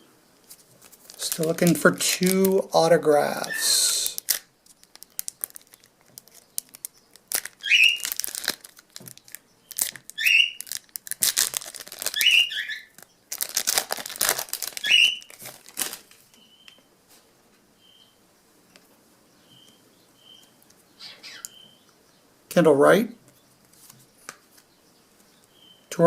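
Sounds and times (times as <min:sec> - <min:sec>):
foil wrappers crinkling and tearing: 0:00.5 - 0:02.6, 0:03.2 - 0:16.3.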